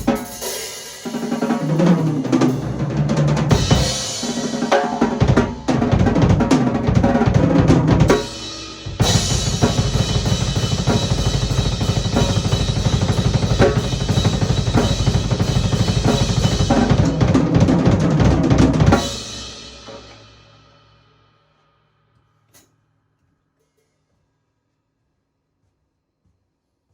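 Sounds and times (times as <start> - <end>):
drum kit played hard: 0.0 - 20.8.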